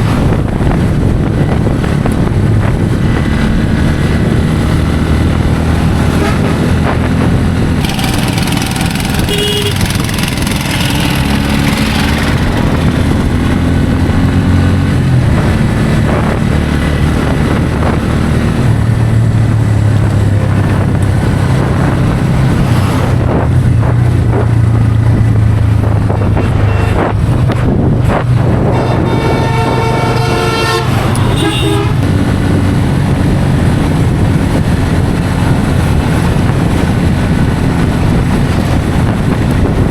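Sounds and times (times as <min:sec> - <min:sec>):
motorcycle engine at speed: 0:00.0 - 0:39.9
wind rushing: 0:00.0 - 0:39.9
vehicle horn: 0:06.1 - 0:06.7, 0:09.1 - 0:10.0, 0:26.4 - 0:27.0, 0:28.6 - 0:32.1.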